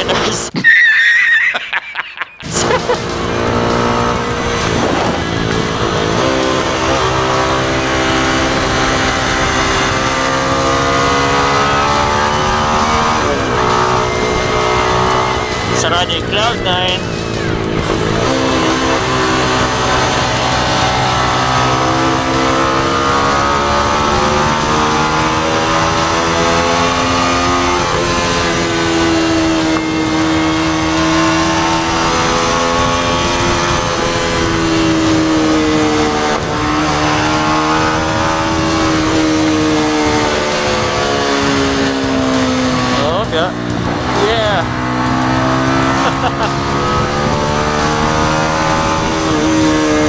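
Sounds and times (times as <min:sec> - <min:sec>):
motorcycle engine accelerating: 0:02.4 - 0:50.0
wind rush: 0:04.2 - 0:06.1.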